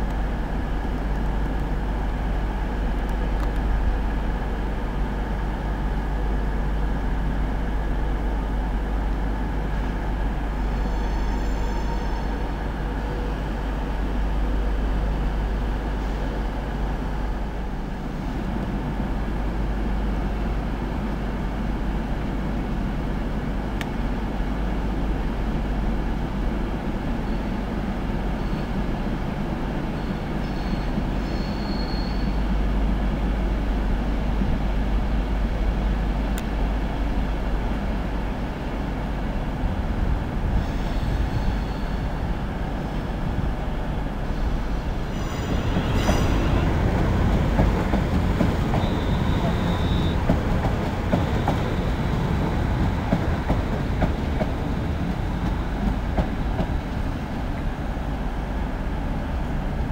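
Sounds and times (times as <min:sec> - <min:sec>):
train wheels rumbling on rails: 0:00.0 - 0:59.9
high wheel squeals: 0:10.7 - 0:12.4, 0:30.0 - 0:32.4, 0:40.6 - 0:42.2, 0:44.3 - 0:46.7, 0:48.6 - 0:50.4.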